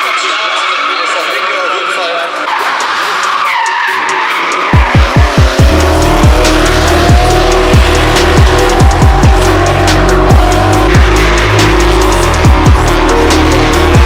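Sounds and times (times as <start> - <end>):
car engines: 0.0 - 14.0
tyres squealing: 0.0 - 14.0
music with deep bass hits: 4.8 - 14.0.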